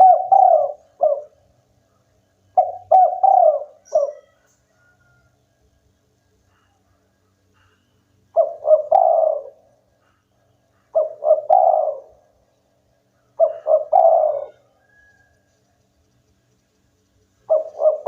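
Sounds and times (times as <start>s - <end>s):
dove cooing: 0.0s - 1.6s, 2.5s - 5.2s, 7.6s - 12.5s, 13.1s - 15.3s, 17.4s - 18.0s.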